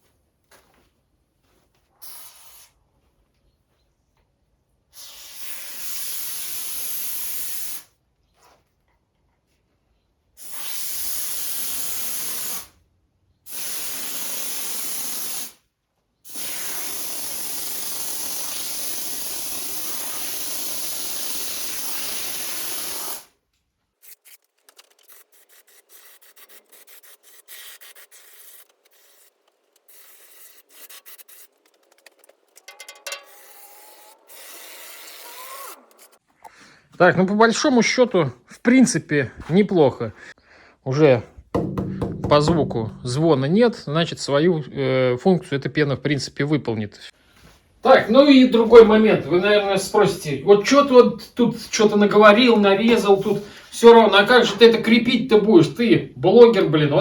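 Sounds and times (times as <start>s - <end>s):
aerosol can spraying hiss: 2.0s - 2.7s, 5.0s - 7.9s, 10.4s - 12.7s, 13.5s - 15.6s, 16.3s - 23.3s, 25.1s - 31.5s
light knocks: 41.5s - 43.2s.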